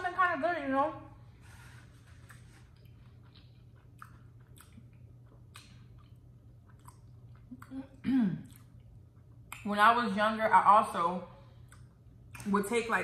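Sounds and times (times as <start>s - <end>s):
person chewing food: 1.4s - 9.7s, 11.6s - 12.5s.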